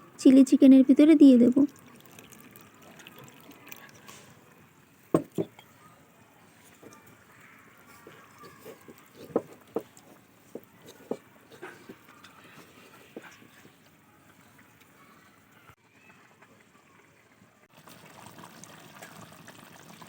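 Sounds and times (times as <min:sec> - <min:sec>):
spatula stirring gravy in pan: 0:06.6 - 0:14.8.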